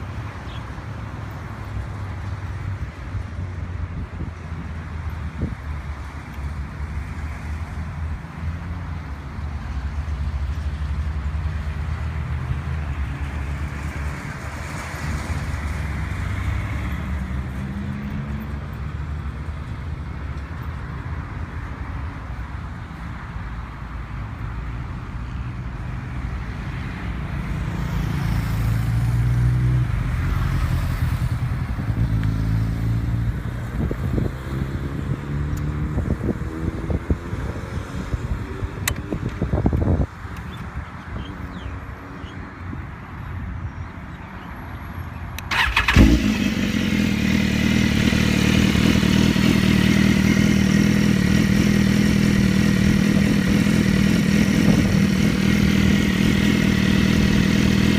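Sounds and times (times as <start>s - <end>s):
motorcycle engine revving: 45.5s - 57.9s.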